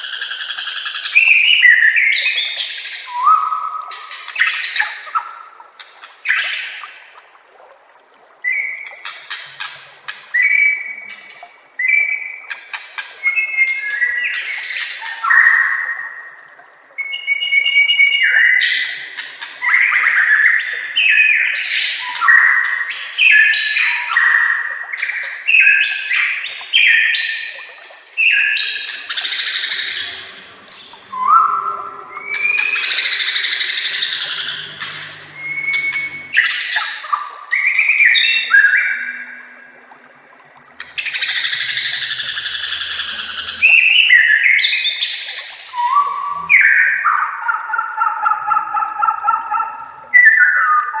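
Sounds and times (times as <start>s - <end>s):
harsh rasping bird notes: 29.0s - 37.0s, 40.8s - 44.4s
bird singing whistled phrases: 29.4s - 36.9s, 41.4s - 49.1s.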